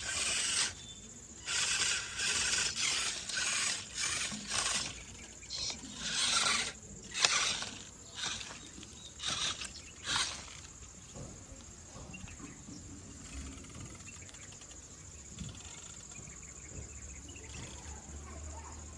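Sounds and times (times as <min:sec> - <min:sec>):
high-pitched electric whine: 0:00.0 - 0:10.9
small clicks: 0:00.0 - 0:11.0
scraping rattle: 0:00.0 - 0:11.2, 0:12.1 - 0:16.4.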